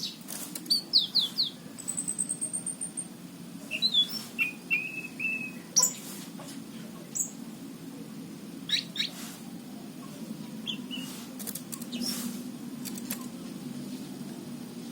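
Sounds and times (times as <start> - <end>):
bird chirping: 0.0 - 6.1, 7.1 - 7.4, 8.6 - 12.4
steady low hum: 0.0 - 14.9.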